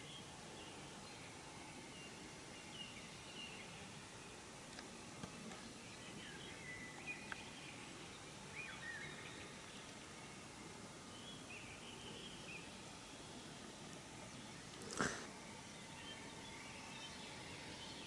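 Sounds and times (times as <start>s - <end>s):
low background hiss: 0.0s - 18.0s
faint bird chirps and whistles: 5.3s - 13.6s.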